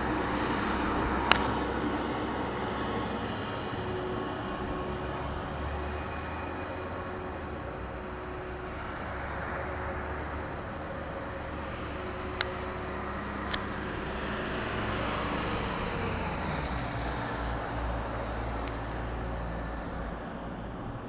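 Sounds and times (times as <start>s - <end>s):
vehicle passing by: 0.0s - 21.0s
sharp clicks: 1.2s - 1.7s.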